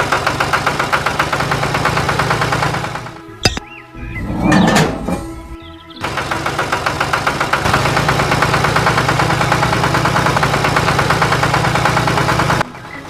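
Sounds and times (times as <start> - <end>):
engine idling with rapid knock: 0.0 - 3.2, 6.0 - 13.0.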